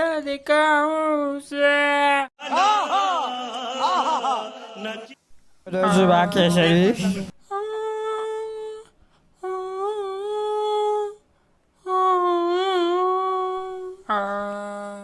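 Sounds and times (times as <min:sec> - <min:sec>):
person humming: 0:05.8 - 0:11.2, 0:11.9 - 0:15.0.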